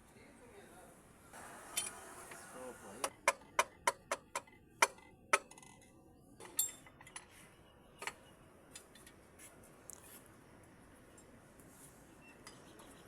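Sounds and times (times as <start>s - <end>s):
metal tools clinking: 1.7s - 2.0s, 6.4s - 7.3s.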